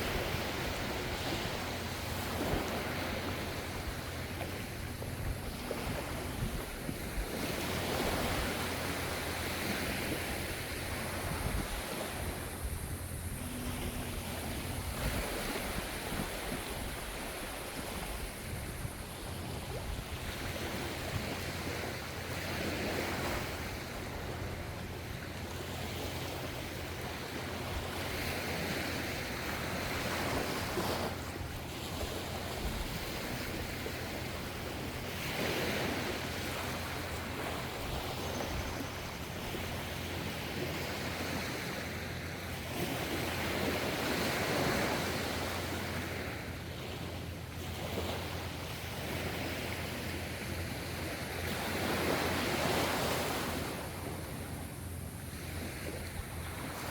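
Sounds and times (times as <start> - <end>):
surf rushing: 0.0 - 24.9
ocean waves breaking: 0.0 - 56.9.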